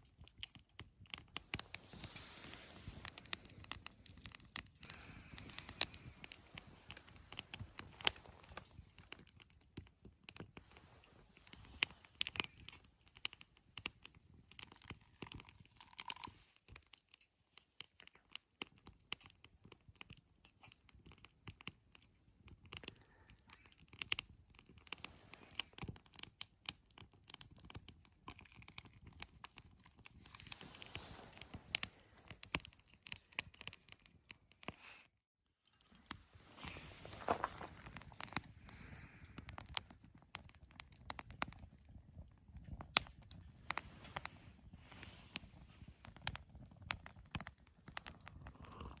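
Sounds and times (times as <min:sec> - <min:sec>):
campfire crackling and popping: 0:00.0 - 0:17.1, 0:17.8 - 0:34.7, 0:35.9 - 0:49.0.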